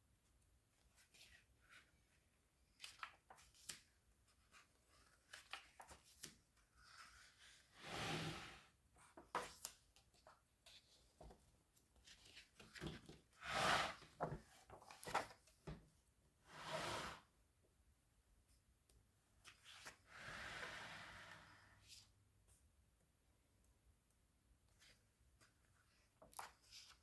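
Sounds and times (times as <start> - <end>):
book pages turning: 4.5 - 7.3.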